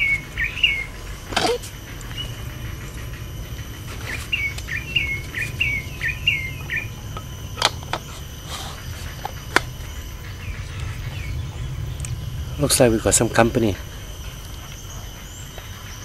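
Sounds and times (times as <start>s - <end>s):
bird chirping: 0.0s - 1.0s, 4.1s - 7.2s, 8.8s - 16.0s
low steady rumble: 0.0s - 16.0s.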